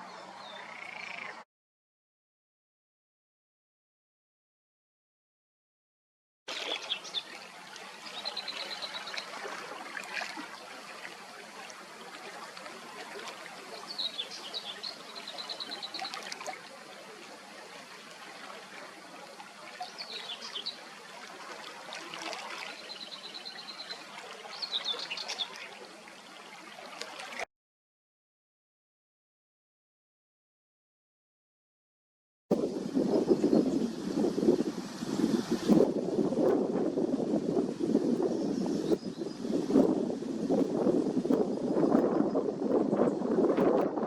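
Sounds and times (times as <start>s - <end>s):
songbird singing: 0.0s - 1.4s, 6.5s - 9.4s, 12.8s - 16.6s, 19.7s - 20.9s, 22.7s - 26.4s, 32.8s - 34.8s, 38.1s - 40.0s, 40.8s - 43.5s.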